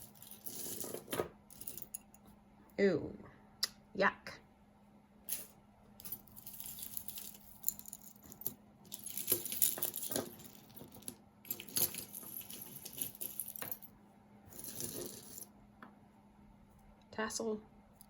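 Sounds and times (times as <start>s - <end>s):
jewelry clinking and jangling: 0.0s - 2.2s, 5.3s - 15.6s.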